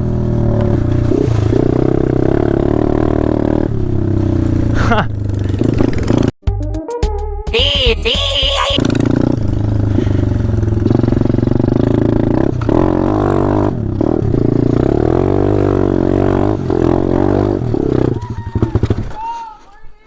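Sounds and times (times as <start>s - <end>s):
small motorbike engine revving: 8.7s - 19.1s.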